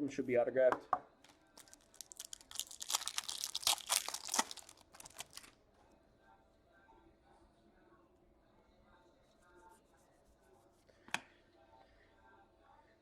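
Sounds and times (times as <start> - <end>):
foil wrapper tearing and crinkling: 1.6 - 5.5.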